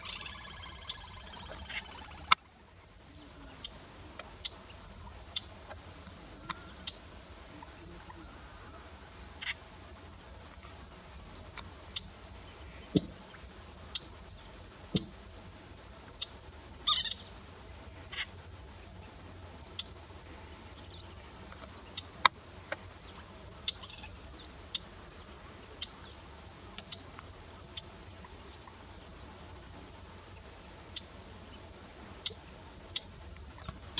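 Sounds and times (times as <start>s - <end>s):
harsh bird call: 0.0s - 2.4s, 16.8s - 17.3s
warbler call notes: 0.0s - 10.0s, 15.8s - 33.9s.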